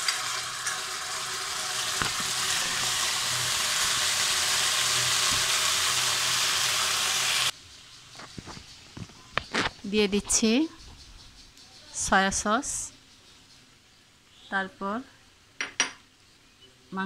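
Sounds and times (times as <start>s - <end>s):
sauce sizzling in hot oil: 0.0s - 8.0s.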